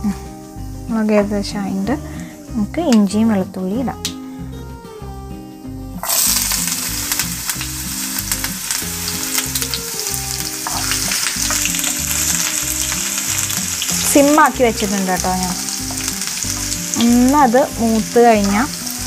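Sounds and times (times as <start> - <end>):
food sizzling in hot oil: 5.6 - 19.0.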